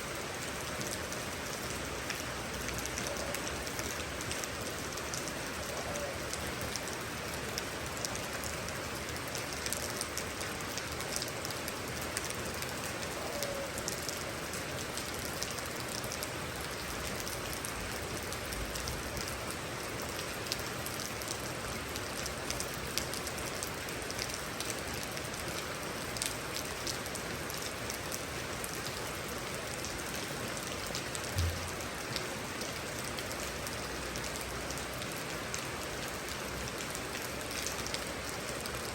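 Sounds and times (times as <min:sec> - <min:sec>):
steady rain with ticking drops: 0:00.0 - 0:38.9
brief low thump: 0:31.4 - 0:31.9.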